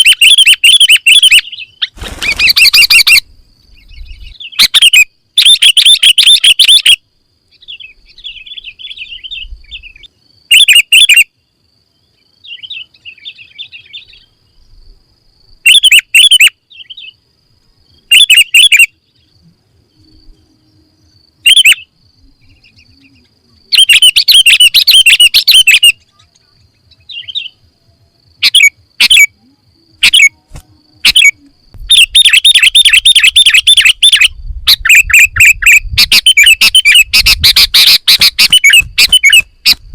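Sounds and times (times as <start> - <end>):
bird chirping: 0.0 - 17.2, 17.8 - 39.9
bird twittering: 18.1 - 19.3, 21.4 - 27.6, 28.4 - 29.3, 30.0 - 30.4, 31.0 - 39.8.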